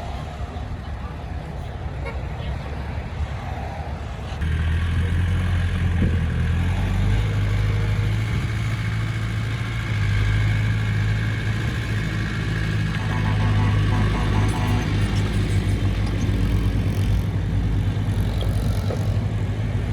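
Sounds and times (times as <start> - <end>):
diesel engine droning: 4.3 - 19.9.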